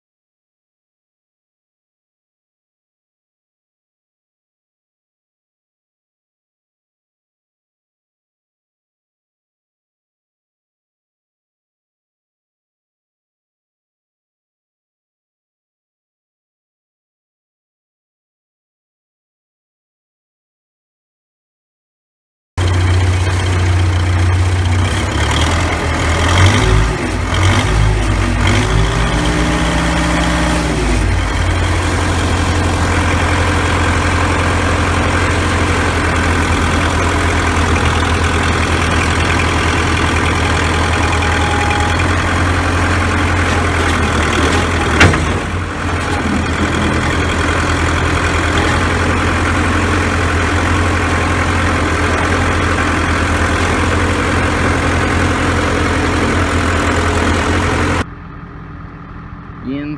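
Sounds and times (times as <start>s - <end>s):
backhoe diesel engine running: 22.6s - 59.9s
sharp clunk: 43.8s - 47.0s.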